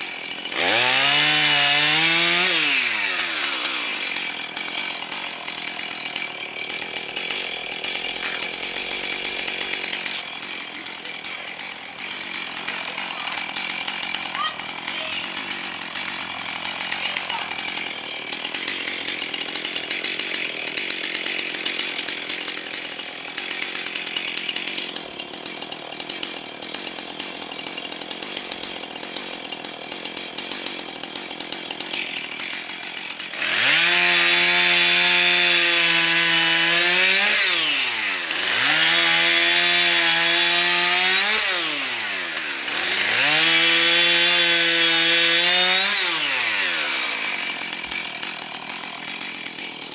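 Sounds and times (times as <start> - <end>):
chainsaw cutting wood: 0.0 - 49.9.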